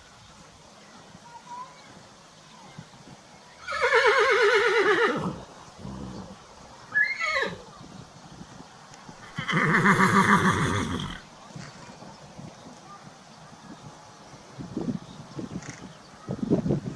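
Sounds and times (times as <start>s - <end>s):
horse whinnying: 3.6s - 7.6s, 9.2s - 11.2s.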